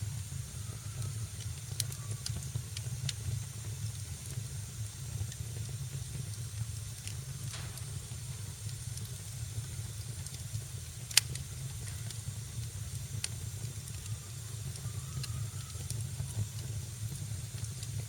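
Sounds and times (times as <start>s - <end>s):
wood fire crackling: 0.1s - 18.0s
loud sharp pop: 7.5s - 8.0s.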